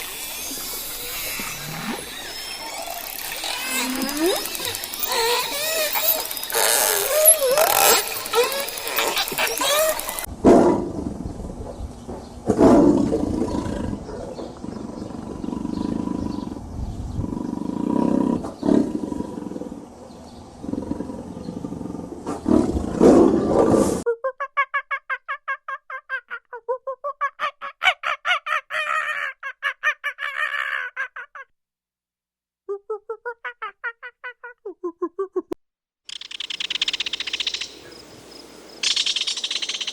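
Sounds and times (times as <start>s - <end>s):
big cat roaring and growling: 12.4s - 20.0s, 20.6s - 24.0s.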